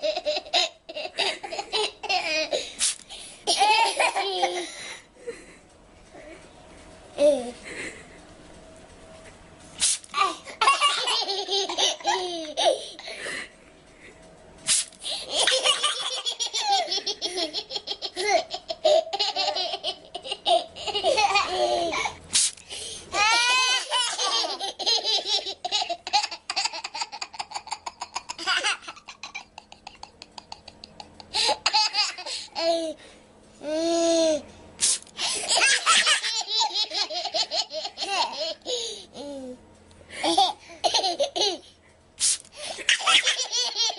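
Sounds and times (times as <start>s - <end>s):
toddlers laughing: 0.0s - 2.6s, 3.5s - 4.8s, 10.2s - 13.0s, 15.2s - 22.2s, 23.2s - 33.0s, 35.2s - 39.3s, 42.8s - 43.9s
spray bottle spritzing: 2.8s - 3.0s, 9.8s - 10.1s, 14.7s - 15.0s, 22.3s - 22.6s, 34.8s - 35.1s, 42.2s - 42.5s.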